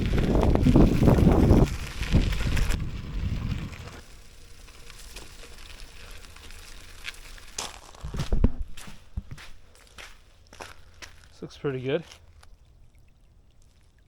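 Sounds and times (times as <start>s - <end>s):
wind buffeting microphone: 0.0s - 4.0s
bicycle tyres rolling on gravel: 0.0s - 12.6s
thumps: 8.0s - 9.4s.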